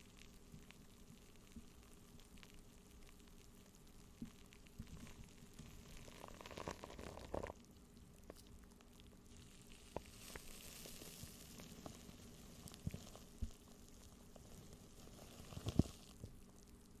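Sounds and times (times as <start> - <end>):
faint crackling: 0.0 - 17.0
soft high hiss: 0.0 - 17.0.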